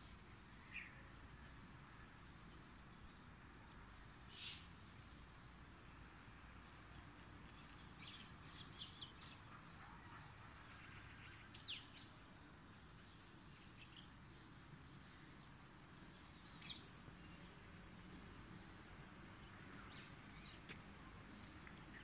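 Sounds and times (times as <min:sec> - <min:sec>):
faint steady background hiss: 0:00.0 - 0:22.0
birds chirping: 0:06.6 - 0:18.6.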